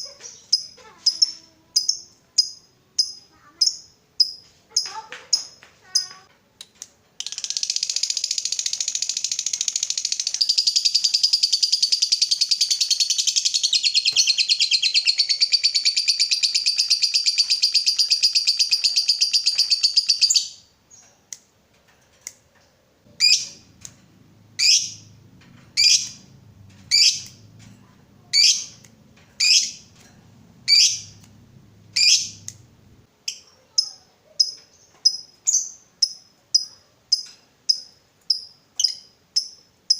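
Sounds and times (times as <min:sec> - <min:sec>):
bird chattering trill: 0:07.2 - 0:20.6, 0:23.2 - 0:23.8, 0:24.5 - 0:25.1, 0:25.7 - 0:30.0, 0:30.6 - 0:31.3, 0:31.9 - 0:39.6
sharp bird chirps: 0:07.2 - 0:21.1, 0:23.2 - 0:24.0, 0:24.6 - 0:25.1, 0:25.7 - 0:26.3, 0:26.9 - 0:27.4, 0:28.3 - 0:30.0, 0:30.7 - 0:31.3, 0:31.9 - 0:32.7.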